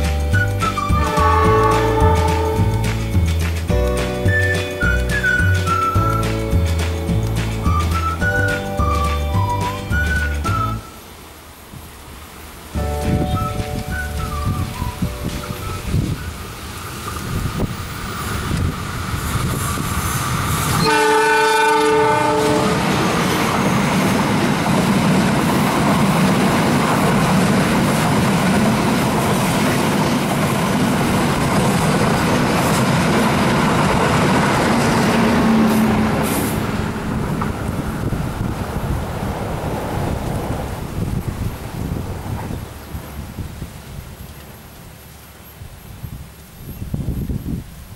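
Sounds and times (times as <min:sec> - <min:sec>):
train wheels rumbling on rail: 0:00.0 - 0:10.8, 0:12.6 - 0:47.9
train horn blast: 0:00.9 - 0:02.8, 0:20.7 - 0:22.9.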